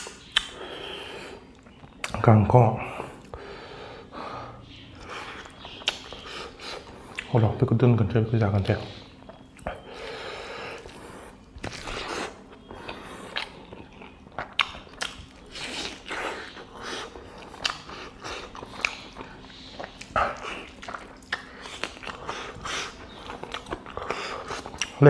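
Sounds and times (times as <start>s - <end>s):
mouth clicks and smacks: 0.0s - 2.2s, 5.0s - 7.4s, 11.6s - 25.0s
man biting and chewing: 5.0s - 7.3s, 9.2s - 25.0s.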